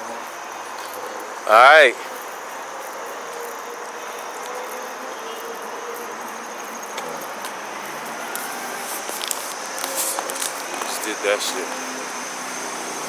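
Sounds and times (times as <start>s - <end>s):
crickets trilling: 0.0s - 13.0s
outdoor background hiss: 0.0s - 13.0s.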